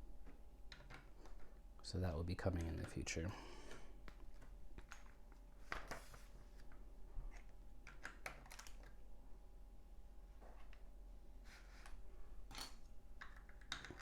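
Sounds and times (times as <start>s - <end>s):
plastic bricks clicking: 12.5s - 14.0s.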